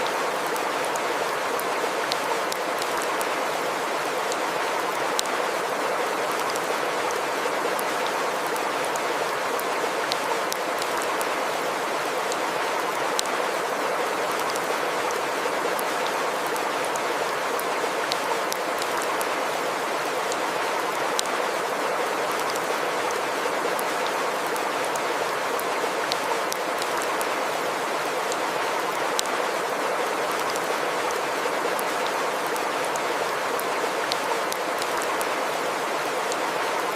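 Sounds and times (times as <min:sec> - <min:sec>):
stream water rushing: 0:00.0 - 0:36.9.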